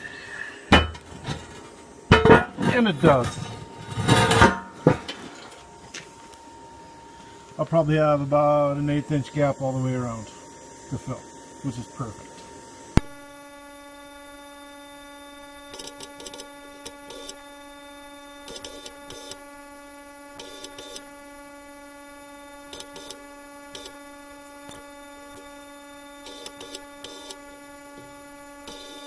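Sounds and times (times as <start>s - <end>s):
welding machine electrical hum: 0.0s - 29.0s
welding arc crackle: 12.5s - 29.0s.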